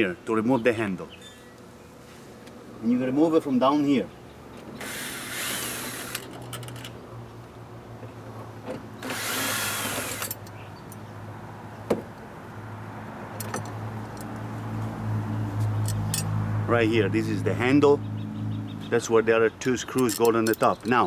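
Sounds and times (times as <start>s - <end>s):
cordless drill running: 4.8s - 6.3s, 9.0s - 10.2s.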